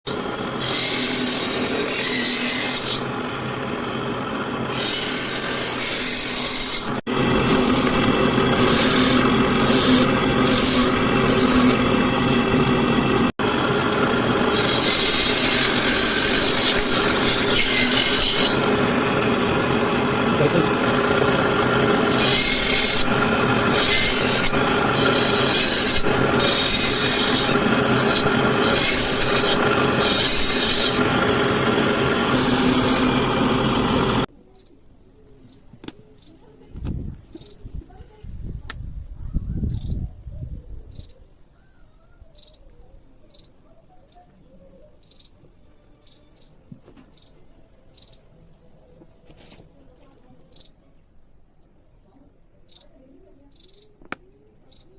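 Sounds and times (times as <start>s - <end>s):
abrupt wood cuts: 0.1s - 34.3s
steady machine hum: 0.1s - 34.3s
wood rasping: 4.7s - 11.9s, 14.4s - 19.4s, 21.0s - 33.4s.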